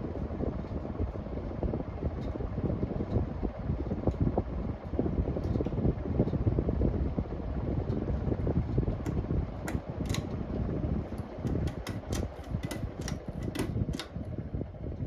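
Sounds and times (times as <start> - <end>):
ceiling fan airflow rush: 0.0 - 15.0
light clicks from fan: 2.1 - 3.3, 4.0 - 4.4, 5.4 - 6.5, 7.8 - 14.5.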